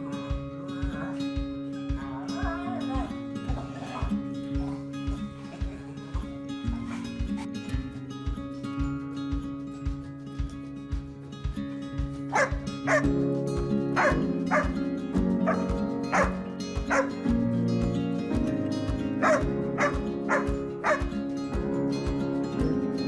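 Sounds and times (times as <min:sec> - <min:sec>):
background music: 0:00.0 - 0:23.0
dog barking: 0:12.3 - 0:13.1, 0:14.0 - 0:14.8, 0:15.4 - 0:17.2, 0:19.2 - 0:21.1.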